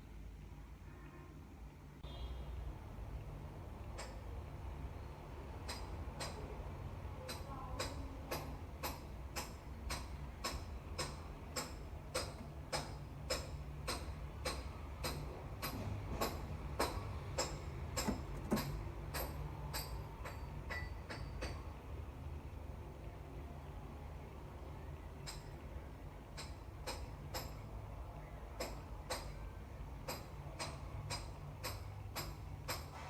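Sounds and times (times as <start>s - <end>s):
sharp metallic clicks: 7.2s - 21.6s.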